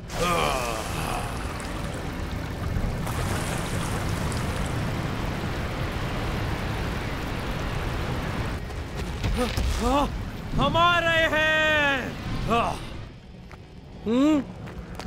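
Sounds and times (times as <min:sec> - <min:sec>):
cartoon rushing water: 0:00.0 - 0:08.6.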